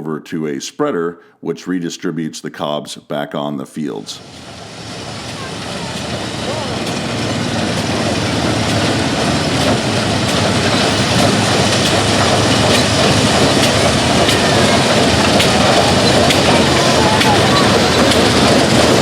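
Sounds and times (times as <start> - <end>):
corn sheller mechanical rattle: 4.4 - 19.0.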